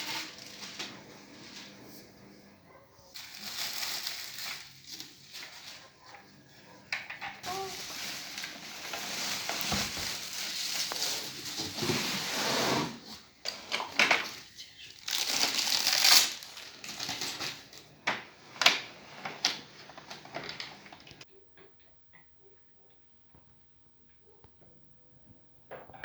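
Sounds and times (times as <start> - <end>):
plastic and cardboard rustling: 0.0 - 1.9, 3.1 - 6.4, 7.2 - 21.2.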